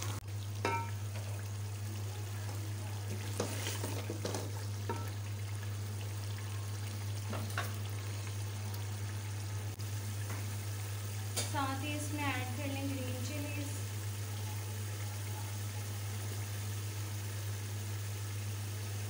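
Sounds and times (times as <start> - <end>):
food sizzling in a pot: 0.0 - 19.0
wooden spoon scraping a pot: 3.2 - 5.0.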